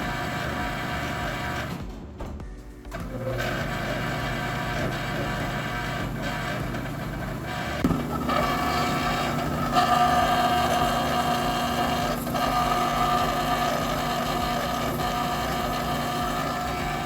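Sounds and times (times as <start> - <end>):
dryer motor whine: 0.0 - 17.0.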